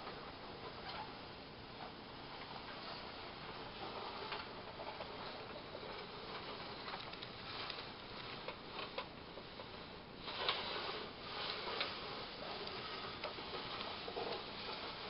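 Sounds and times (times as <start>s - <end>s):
toy train rolling on metal track: 0.0s - 15.0s.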